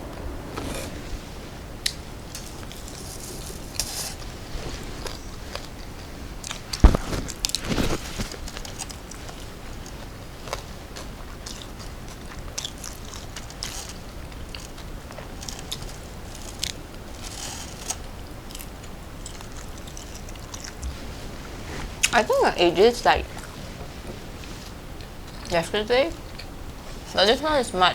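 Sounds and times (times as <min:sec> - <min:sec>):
chewing with crackles: 0:00.0 - 0:27.7
crunchy snack bite: 0:04.9 - 0:20.9.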